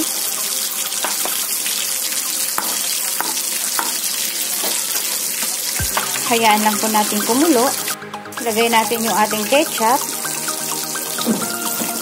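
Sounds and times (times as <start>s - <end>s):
sauce sizzling in a wok: 0.0s - 8.0s.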